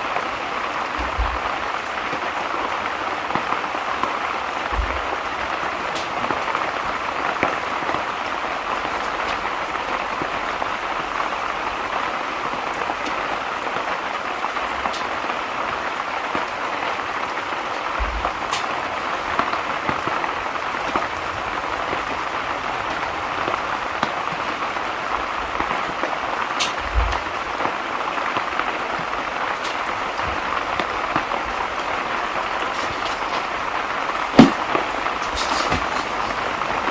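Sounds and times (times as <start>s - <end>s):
steady rain falling: 0.0s - 36.9s
fire crackles: 12.4s - 36.9s.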